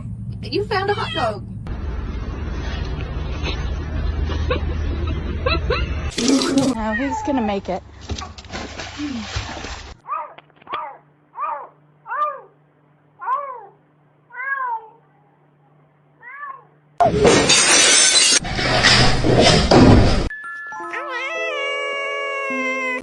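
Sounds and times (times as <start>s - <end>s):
cat meowing: 13.2s - 15.0s, 20.8s - 23.0s.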